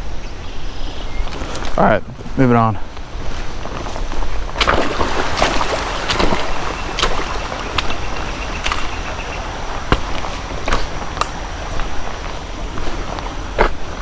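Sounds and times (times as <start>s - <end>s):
steady low rumble: 2.8s - 14.0s
footsteps wading through water: 3.0s - 14.0s.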